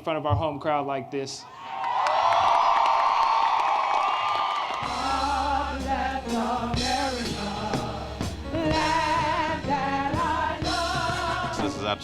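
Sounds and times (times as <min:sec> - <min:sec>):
crowd cheering: 0:01.5 - 0:05.0
person singing: 0:04.8 - 0:12.0
song with steady bass line: 0:04.8 - 0:12.0.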